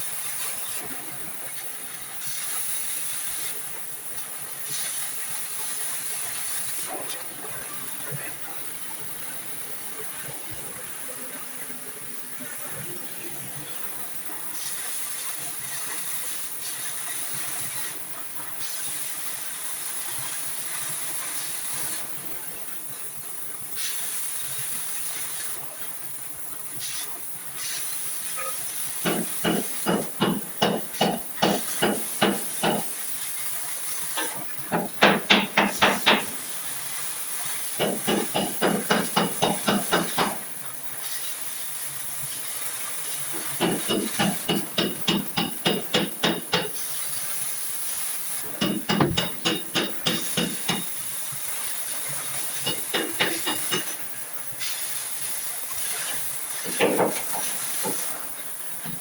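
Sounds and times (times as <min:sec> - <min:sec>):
steady high hiss: 0:00.0 - 0:59.0
hammer blows on sheet metal: 0:29.0 - 0:33.0, 0:34.7 - 0:36.4, 0:37.8 - 0:40.5, 0:43.6 - 0:46.8, 0:48.6 - 0:51.0.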